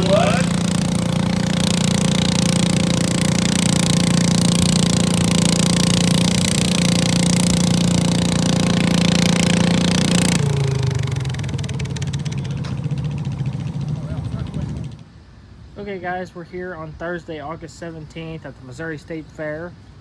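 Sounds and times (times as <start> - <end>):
tractor engine running flat out: 0.0 - 15.0
low engine hum: 0.0 - 15.1.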